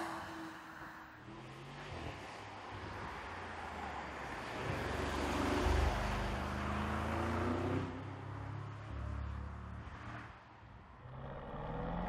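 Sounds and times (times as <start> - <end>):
car engine passing by: 3.6 - 12.0.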